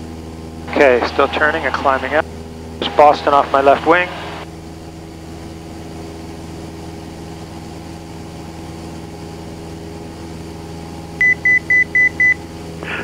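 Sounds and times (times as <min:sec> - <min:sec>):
propeller plane engine droning: 0:00.0 - 0:13.0.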